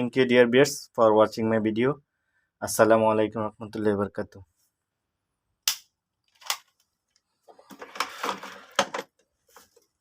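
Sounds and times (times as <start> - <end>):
clattering and rustling: 7.5 - 10.0.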